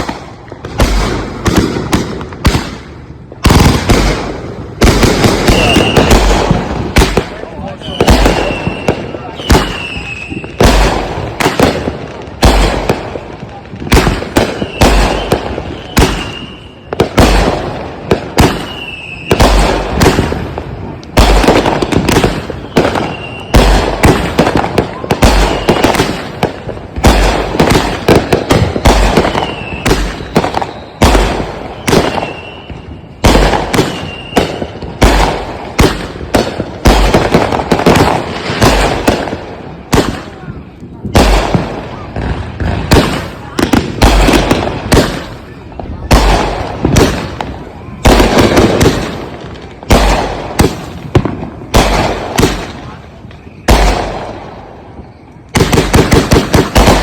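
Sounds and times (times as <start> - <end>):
firework bangs: 0.0 - 57.0
firework crackling: 0.0 - 57.0
high firework whistle: 5.4 - 6.4, 7.7 - 10.6, 14.4 - 17.0, 18.4 - 20.4, 22.2 - 26.4, 28.6 - 34.8.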